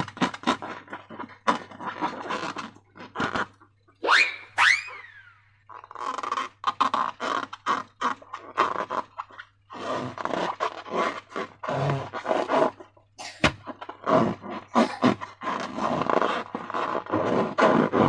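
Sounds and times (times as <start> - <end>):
balloon rubber squeaking: 0.0 - 12.8, 13.4 - 18.0
slime squelching: 0.0 - 18.0.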